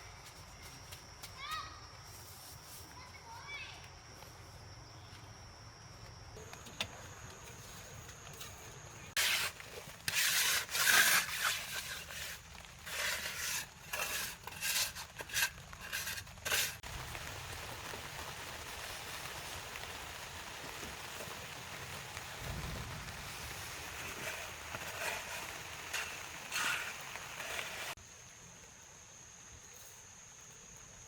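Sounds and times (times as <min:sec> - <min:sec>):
faint steady hiss: 0:00.0 - 0:31.0
scraping rasping strokes: 0:09.1 - 0:16.8, 0:24.0 - 0:28.0.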